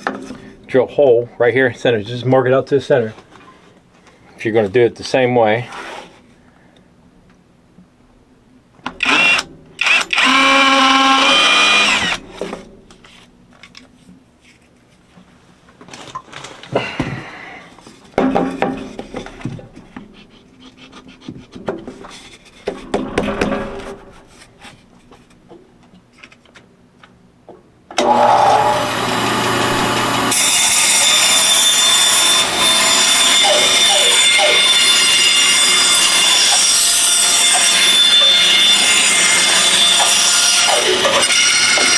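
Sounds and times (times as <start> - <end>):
power tool cutting wood: 9.0 - 12.2, 28.0 - 41.9.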